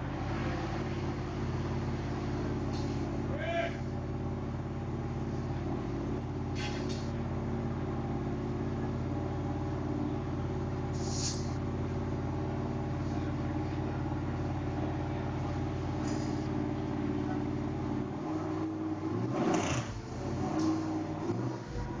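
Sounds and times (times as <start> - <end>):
car engine idling: 0.0 - 22.0
hissing bursts: 10.9 - 11.6.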